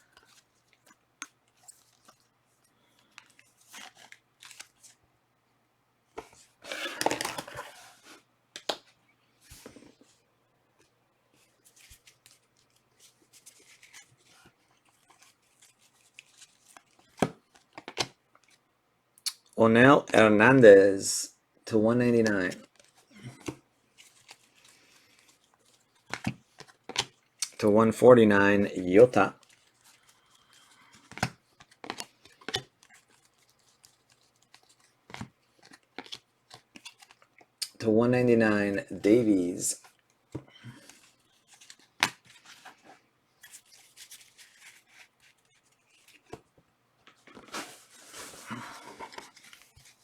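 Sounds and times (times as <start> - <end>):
cards sliding and rubbing: 6.2 - 8.2, 40.9 - 46.4
trading cards being handled: 11.4 - 18.6, 28.8 - 37.6, 39.1 - 50.0.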